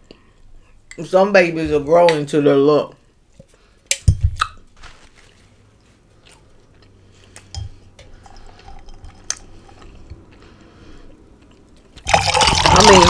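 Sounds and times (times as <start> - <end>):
wet chewing: 6.2 - 12.2.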